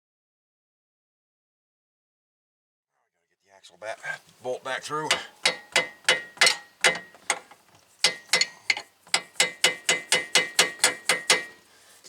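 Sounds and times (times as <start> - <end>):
ratchet wrench clicking: 5.4 - 11.6.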